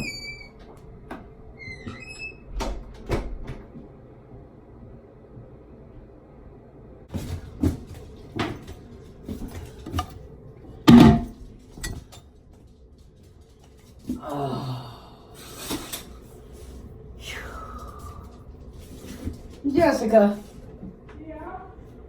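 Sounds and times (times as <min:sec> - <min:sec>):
household knocks and clacks: 0:10.9 - 0:12.2.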